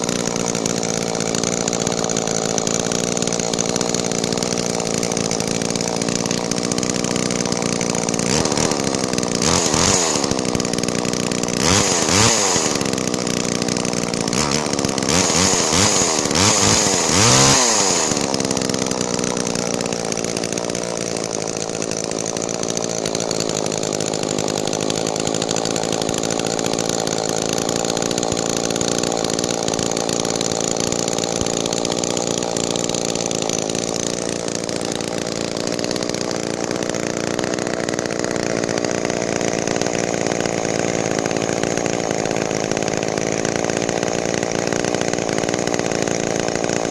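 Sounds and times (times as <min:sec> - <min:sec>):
chainsaw engine revving and idling: 0:00.0 - 0:46.9.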